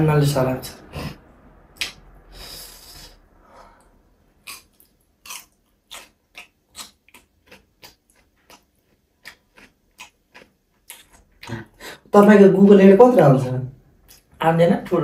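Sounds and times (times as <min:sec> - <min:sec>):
person chewing with wet mouth smacks: 0:04.4 - 0:11.7.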